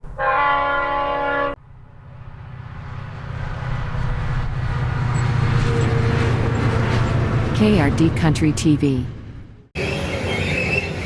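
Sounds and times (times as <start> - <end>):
train rumbling: 0.0 - 11.0
diesel locomotive horn blast: 0.1 - 1.8.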